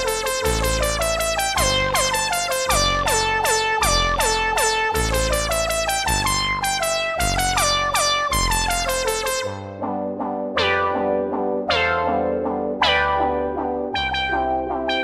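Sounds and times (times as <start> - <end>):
synth meow notes: 11.7 - 12.2, 12.8 - 13.4.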